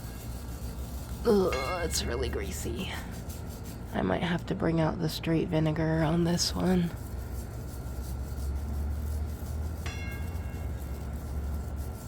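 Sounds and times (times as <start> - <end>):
steady low hum: 0.0 - 12.0
bell-like metallic ring: 1.4 - 2.7, 9.9 - 11.2.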